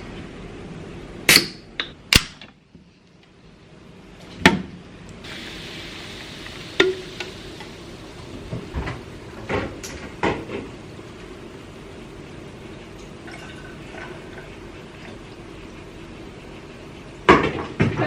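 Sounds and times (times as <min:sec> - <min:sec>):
running water hiss: 0:05.2 - 0:10.1.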